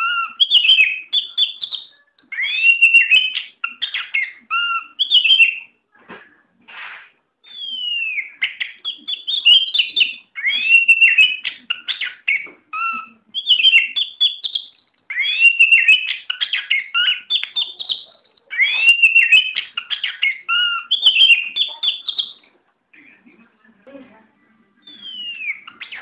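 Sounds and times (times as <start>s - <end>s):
bird singing whistles and clicks: 0.4s - 4.2s, 7.5s - 12.5s, 13.4s - 18.0s, 18.6s - 22.4s.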